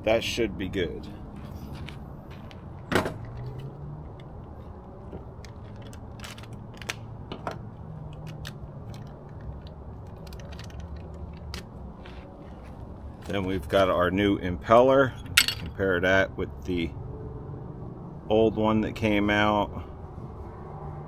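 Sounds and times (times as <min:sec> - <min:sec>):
low background hum: 0:00.0 - 0:17.1
metal parts and tools clicking: 0:08.1 - 0:12.2, 0:15.2 - 0:15.7.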